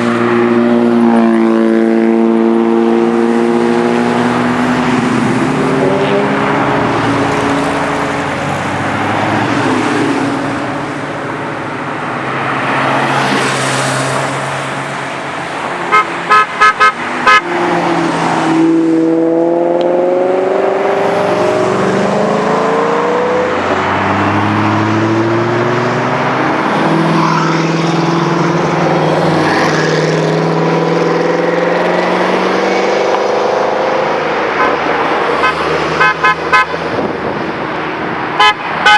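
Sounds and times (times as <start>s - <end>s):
car horn tooting: 15.9s - 17.5s, 35.4s - 36.8s, 38.4s - 38.9s.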